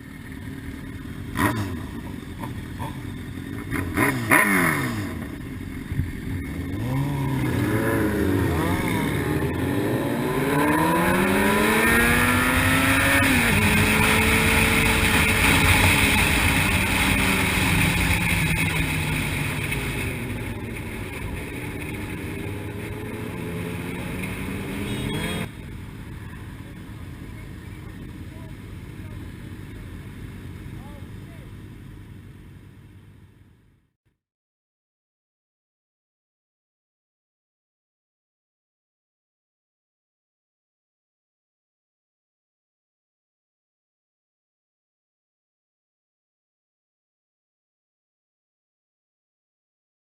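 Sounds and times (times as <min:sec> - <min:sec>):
motorcycle engine accelerating: 0:00.0 - 0:33.4.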